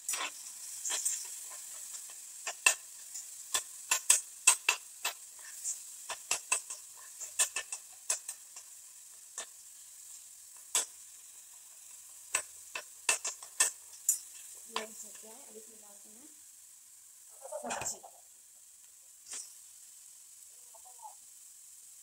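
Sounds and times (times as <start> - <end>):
faint sizzle of frying: 0.0 - 22.0
spatula tapping metal pan: 0.1 - 8.8, 12.3 - 15.3.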